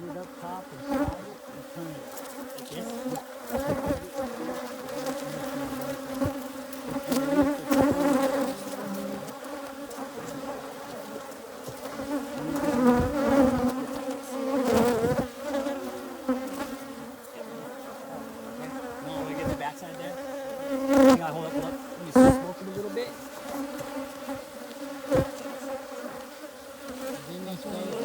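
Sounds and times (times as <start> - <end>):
bees buzzing around hive: 0.0 - 28.0.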